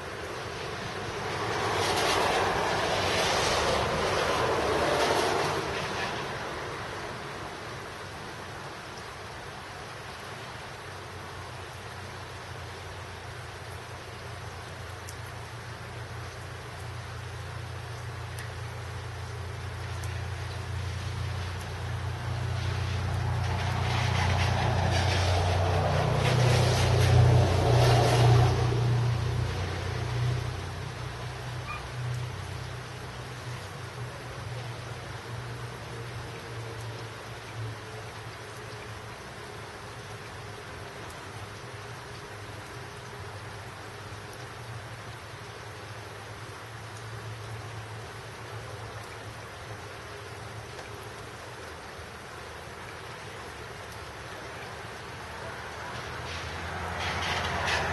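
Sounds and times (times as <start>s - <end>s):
rain hissing: 0.0s - 57.9s
passing vehicle engine: 0.3s - 7.8s, 20.3s - 37.2s, 54.8s - 57.9s.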